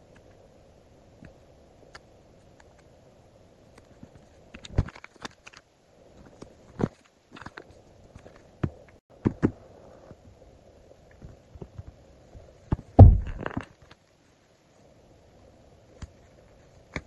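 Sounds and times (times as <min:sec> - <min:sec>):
deep thump: 0:13.0 - 0:13.5.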